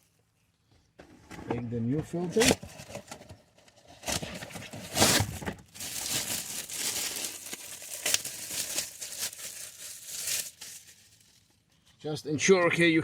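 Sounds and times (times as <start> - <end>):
packaging crinkling and tearing: 2.3 - 11.6.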